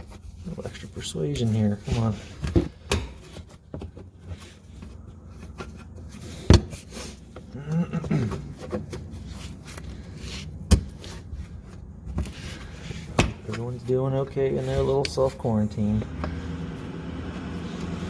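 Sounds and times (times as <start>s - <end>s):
person grunting: 7.6s - 8.3s.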